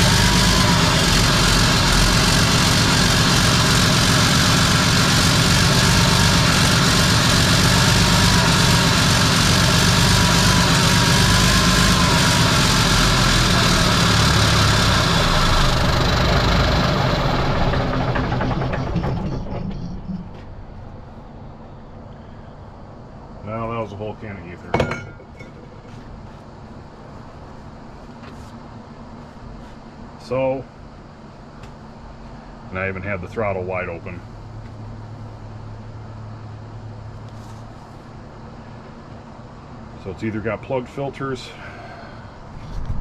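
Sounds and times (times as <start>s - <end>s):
diesel truck engine running: 0.0s - 21.4s.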